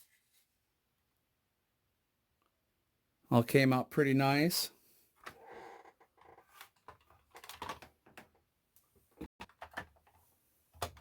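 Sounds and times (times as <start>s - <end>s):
plastic parts clicking and tapping: 6.3s - 11.0s.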